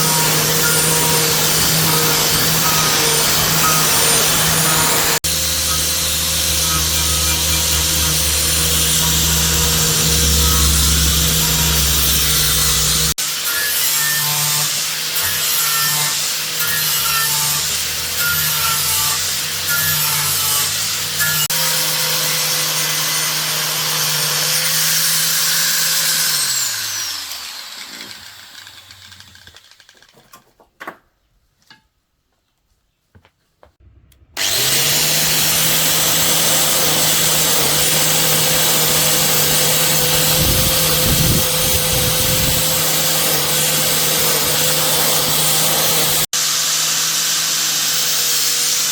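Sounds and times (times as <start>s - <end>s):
electric motor humming: 0.0s - 13.4s, 34.0s - 47.9s.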